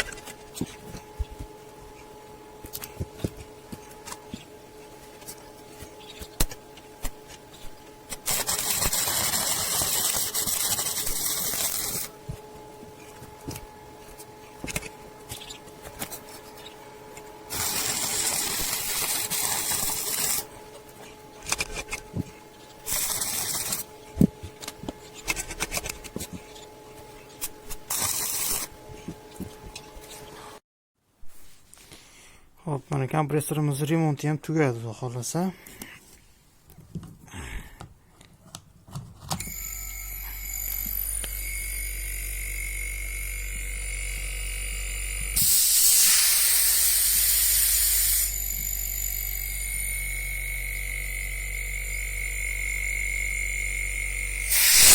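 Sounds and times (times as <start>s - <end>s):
compressed air hissing: 8.2s - 12.1s, 45.4s - 48.3s, 54.5s - 54.9s
refrigerator compressor humming: 39.4s - 54.9s.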